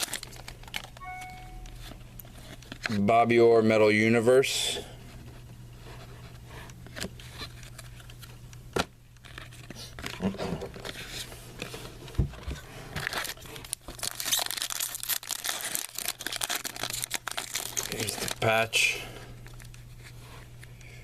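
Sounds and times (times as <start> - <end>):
wrappers tearing and crinkling: 0.0 - 1.0, 13.0 - 19.9.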